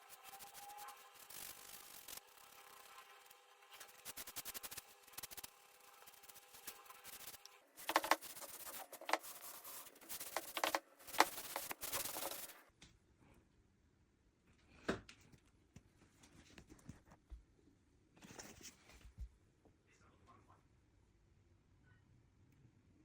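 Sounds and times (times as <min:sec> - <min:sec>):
rubbing on wooden chair frame: 0:00.1 - 0:12.6.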